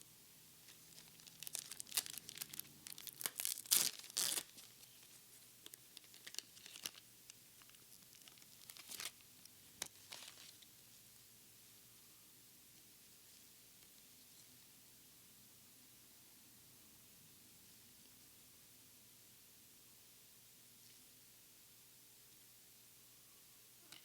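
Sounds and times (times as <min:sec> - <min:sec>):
foil pack tearing and crinkling: 0:00.9 - 0:04.7, 0:06.0 - 0:07.0, 0:07.6 - 0:09.2.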